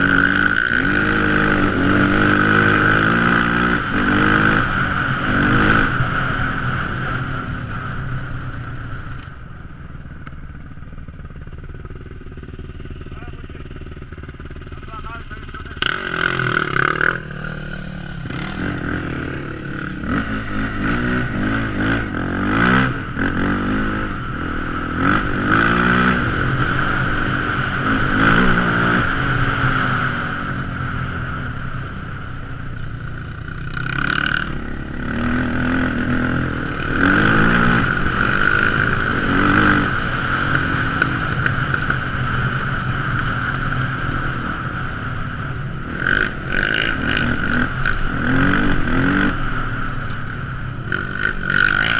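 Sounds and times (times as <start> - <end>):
quad bike engine revving: 0.0 - 8.4, 11.4 - 51.9
steady high whine: 0.0 - 51.9.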